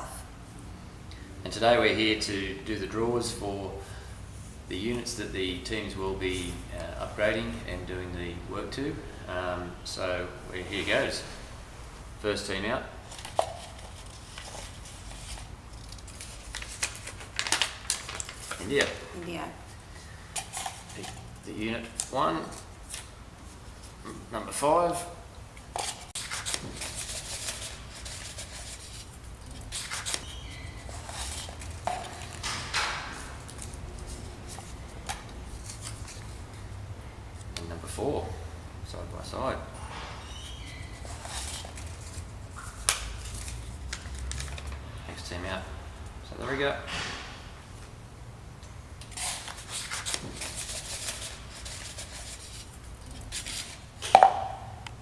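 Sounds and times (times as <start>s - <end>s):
paper rustling and crinkling: 13.0s - 19.0s, 25.8s - 36.4s, 40.6s - 45.0s, 49.1s - 53.9s
sharp knock with ring: 54.1s - 54.7s.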